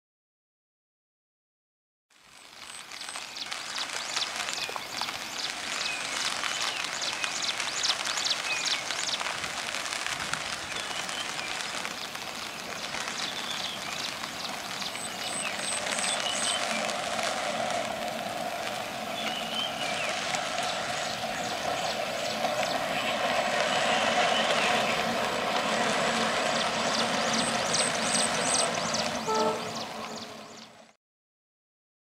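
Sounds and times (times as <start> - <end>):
rain hissing: 2.2 - 31.0
diesel locomotive drone: 3.1 - 31.0
bird chirps: 26.5 - 30.8.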